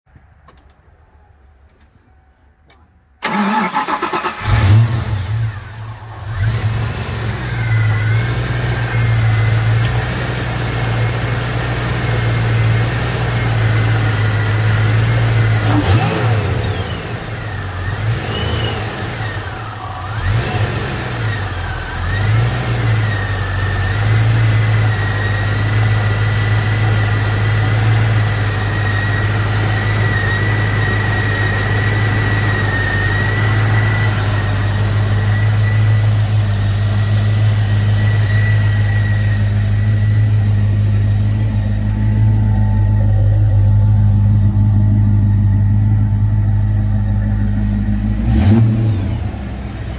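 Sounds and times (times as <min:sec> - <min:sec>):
car engine revving and idling: 0:00.1 - 0:49.9
starter motor cranking: 0:03.2 - 0:06.5.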